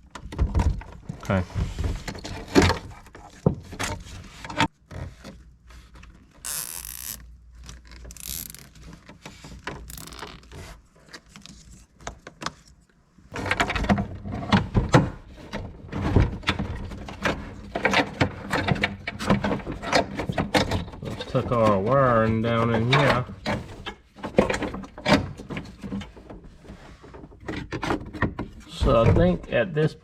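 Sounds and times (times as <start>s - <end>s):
short scraping zips: 6.4s - 7.2s, 8.0s - 8.8s, 9.8s - 10.5s
wiring rustling: 6.4s - 10.7s.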